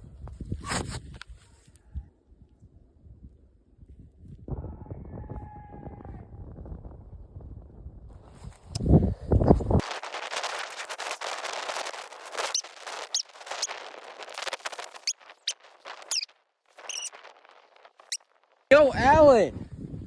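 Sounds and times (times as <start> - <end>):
footsteps through snow and brush: 9.5 - 18.6
short high chirps: 16.1 - 16.3, 16.9 - 17.1.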